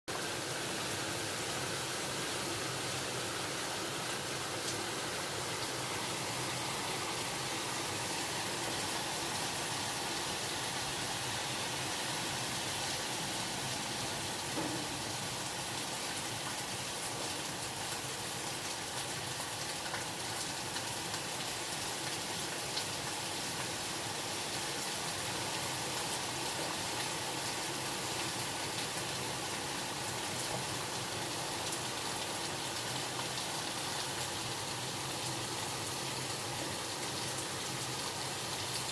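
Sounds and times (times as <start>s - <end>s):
steady rain hiss: 0.1s - 38.9s.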